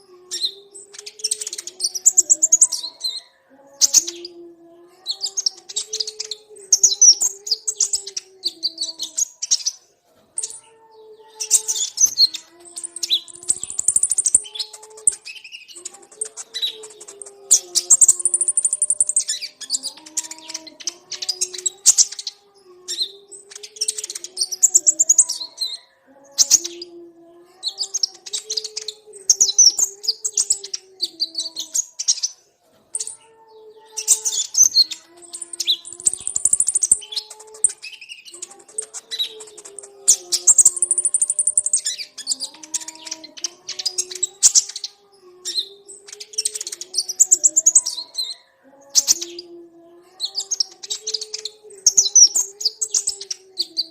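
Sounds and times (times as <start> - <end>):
sunbird twittering: 11.4 - 22.3, 34.0 - 44.8.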